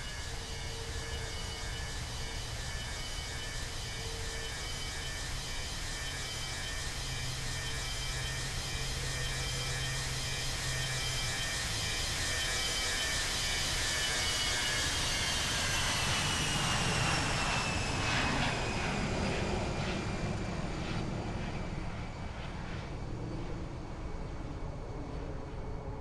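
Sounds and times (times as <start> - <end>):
jet engines roaring with whine: 0.0 - 26.0.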